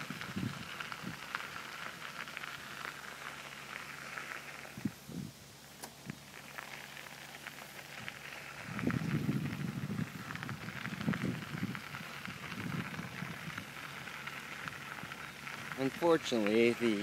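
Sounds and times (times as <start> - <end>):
wind on microphone: 0.0 - 1.3, 4.7 - 5.4, 7.9 - 15.8
bicycle tyres crackling on path: 0.0 - 17.0.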